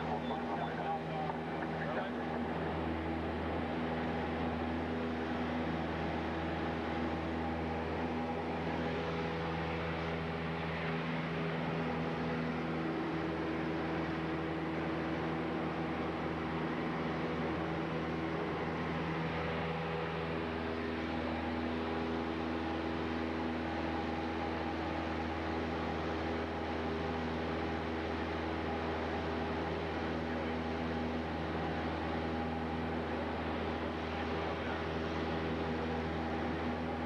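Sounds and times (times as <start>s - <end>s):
airplane engine droning: 0.0s - 37.0s.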